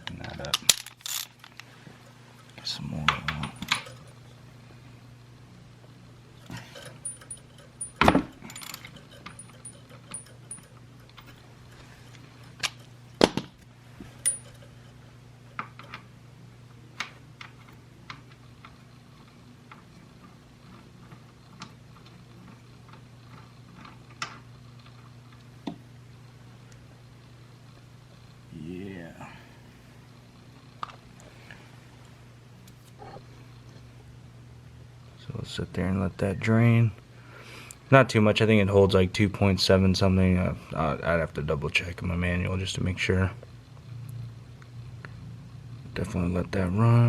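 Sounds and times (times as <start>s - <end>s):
hand tools clinking and knocking: 0.0s - 1.6s, 6.5s - 11.9s, 14.1s - 14.9s
steady low hum: 0.0s - 47.0s.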